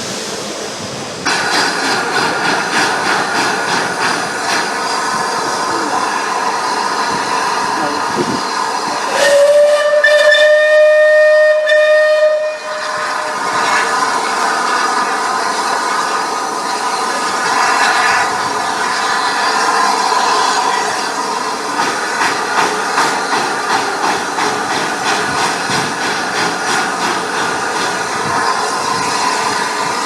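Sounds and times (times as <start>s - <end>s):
steam hissing: 0.0s - 30.0s
steam locomotive whistle: 9.1s - 13.8s.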